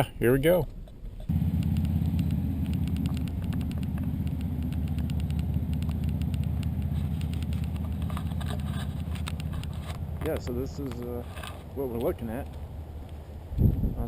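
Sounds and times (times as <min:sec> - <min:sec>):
wind buffeting microphone: 0:09.2 - 0:14.0.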